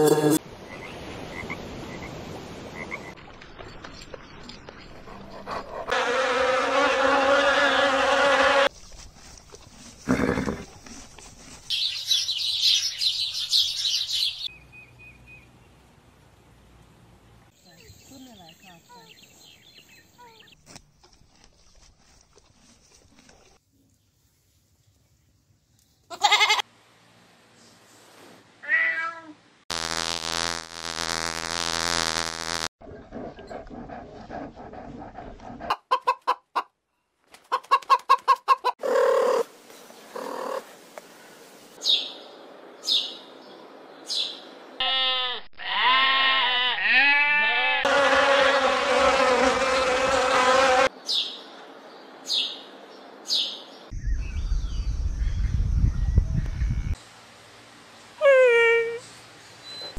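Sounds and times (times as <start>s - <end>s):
goat bleating: 26.1s - 26.6s, 44.8s - 48.6s
cat meowing: 28.6s - 29.4s.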